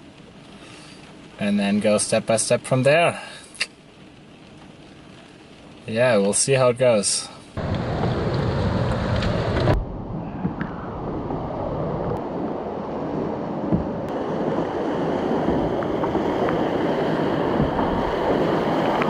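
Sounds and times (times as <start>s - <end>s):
whitewater river rushing: 14.1s - 19.0s.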